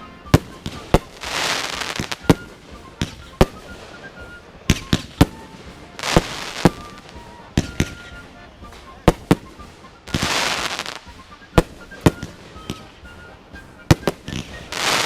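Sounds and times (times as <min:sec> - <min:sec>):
fireworks banging: 0:00.0 - 0:15.0
fireworks hissing crackle: 0:00.0 - 0:15.0.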